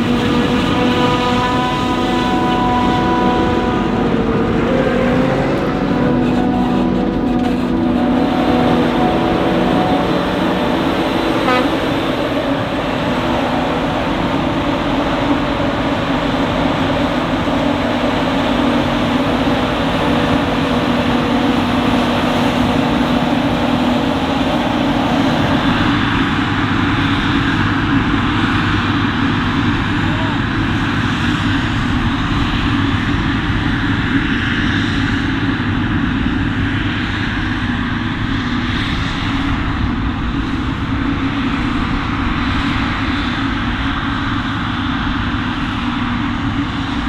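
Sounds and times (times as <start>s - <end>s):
diesel harvester engine hum: 0.0s - 47.0s.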